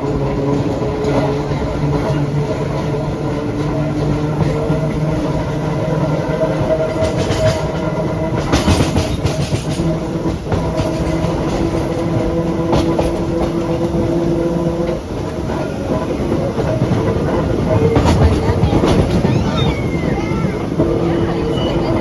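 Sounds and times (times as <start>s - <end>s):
subway train hum and rumble: 0.0s - 22.0s
wheels clicking over rail joints: 0.0s - 22.0s.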